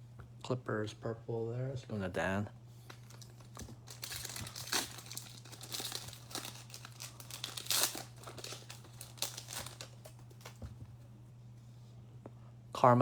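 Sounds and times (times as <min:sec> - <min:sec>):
low electrical hum: 0:00.0 - 0:13.0
foil wrapper crinkling and tearing: 0:02.8 - 0:10.6.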